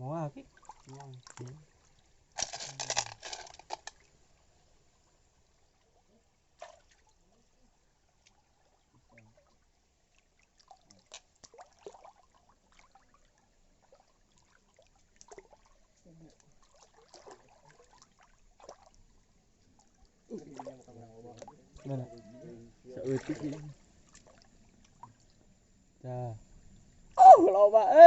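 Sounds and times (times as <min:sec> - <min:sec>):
wet slurping of snails: 0:02.4 - 0:04.0.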